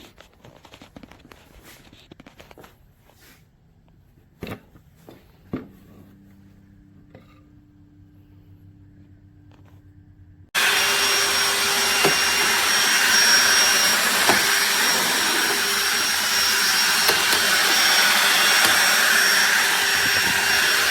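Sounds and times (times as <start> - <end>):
handheld vacuum whining: 10.6 - 20.9.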